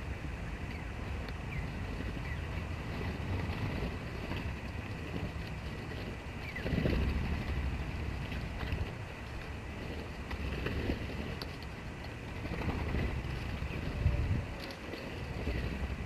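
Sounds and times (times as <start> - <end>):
low uneven rumble: 0.0 - 16.0
sparrows chirping: 0.6 - 2.9, 6.3 - 7.9, 12.5 - 14.2.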